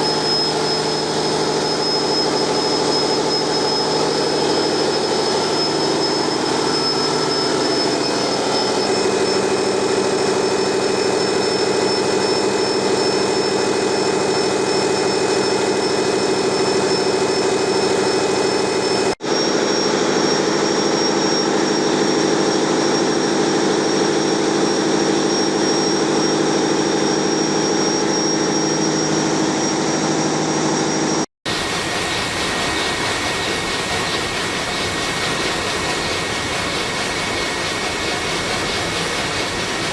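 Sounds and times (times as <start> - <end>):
steady high whine: 0.0 - 39.9
diesel engine mechanical din: 31.5 - 39.9.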